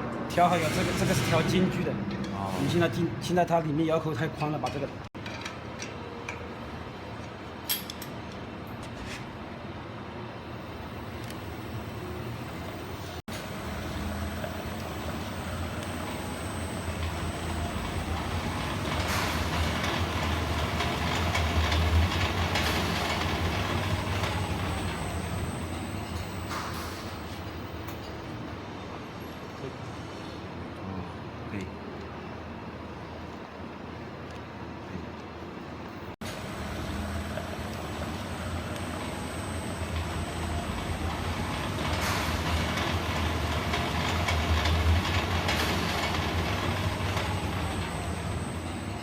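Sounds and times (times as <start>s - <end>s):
machine humming: 10.5s - 28.0s, 36.2s - 49.0s.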